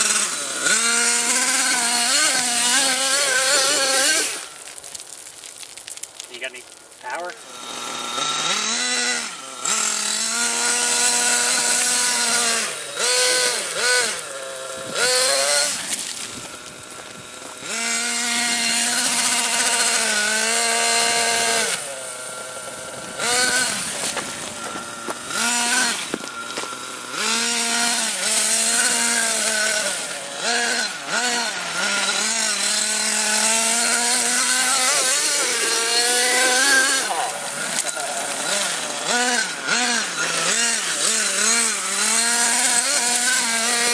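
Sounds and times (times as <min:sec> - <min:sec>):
radio-controlled vehicle motor revving: 0:00.0 - 0:43.9.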